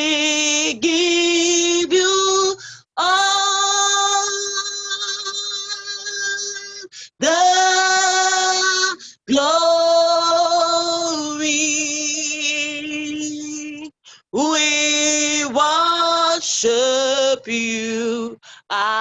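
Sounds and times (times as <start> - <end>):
woman singing slowly: 0.0 - 19.0.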